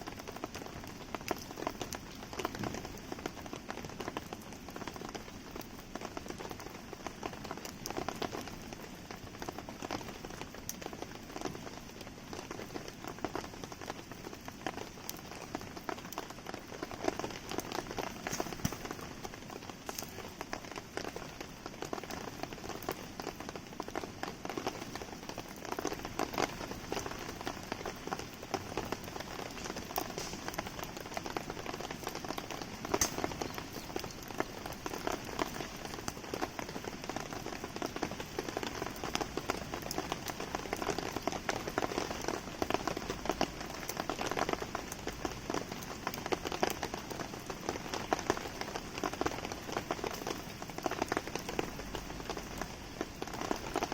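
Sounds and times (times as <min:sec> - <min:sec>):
campfire pops and crackles: 0:00.0 - 0:53.9
steady rain pattering: 0:00.0 - 0:53.9.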